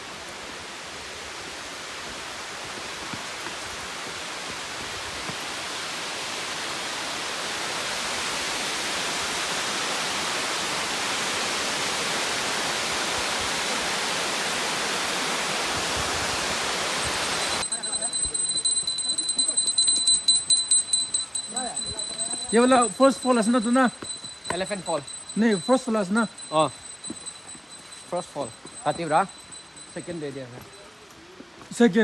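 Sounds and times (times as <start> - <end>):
waterfall rushing: 0.2 - 17.6.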